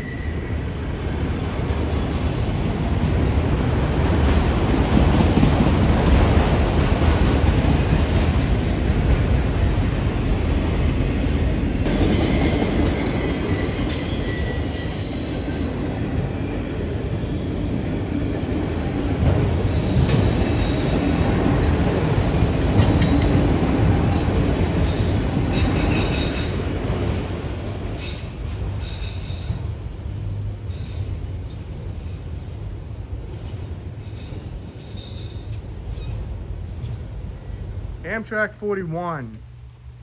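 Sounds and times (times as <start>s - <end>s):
high-pitched wheel squeal: 0.0s - 1.7s, 11.9s - 16.8s
train wheels rumbling on rail: 0.0s - 38.5s.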